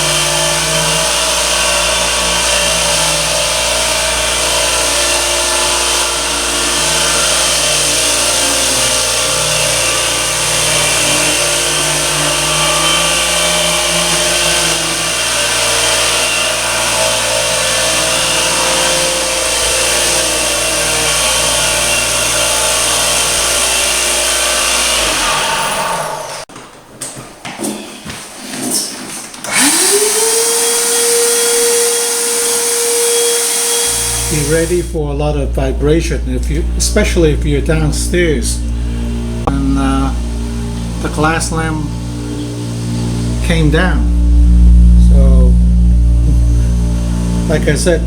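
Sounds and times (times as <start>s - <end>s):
sanding pad hiss: 0.0s - 26.5s, 29.5s - 35.0s
floor sander motor hum: 0.0s - 26.8s, 27.6s - 48.0s.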